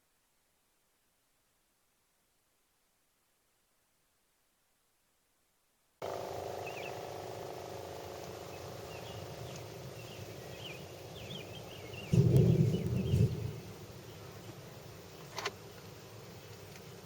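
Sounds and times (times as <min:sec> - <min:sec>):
small animals chirping: 0:06.0 - 0:13.4
steady hum: 0:06.0 - 0:17.0.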